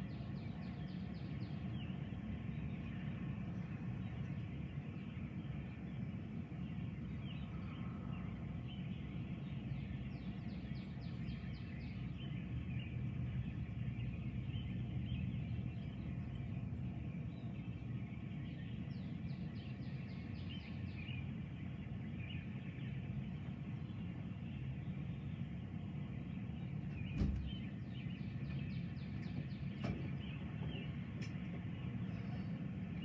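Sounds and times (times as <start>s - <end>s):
steady low rumble: 0.0s - 33.0s
birds calling: 0.1s - 33.0s
rapid rattling bird trills: 17.4s - 33.0s.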